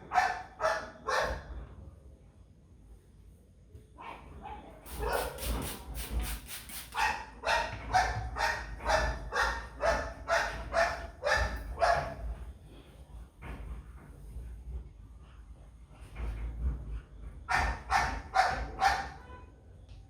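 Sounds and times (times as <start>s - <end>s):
dog barking: 0.0s - 1.5s, 4.0s - 5.5s, 7.0s - 12.2s, 17.5s - 19.4s.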